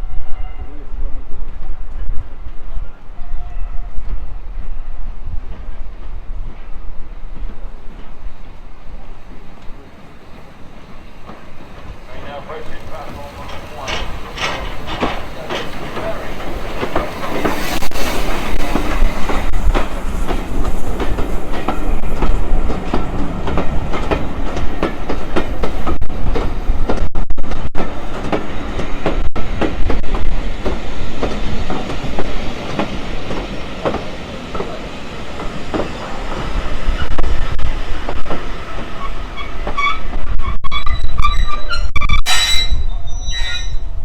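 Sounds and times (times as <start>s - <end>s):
train low rumble: 0.0s - 44.0s
train wheels clickety-clack: 10.6s - 40.6s.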